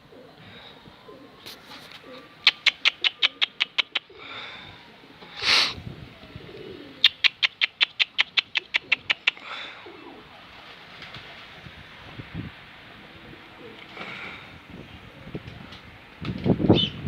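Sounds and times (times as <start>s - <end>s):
pigeons: 0.0s - 11.8s, 13.2s - 17.0s
sharp clapping clicks: 2.5s - 4.0s, 7.0s - 9.4s.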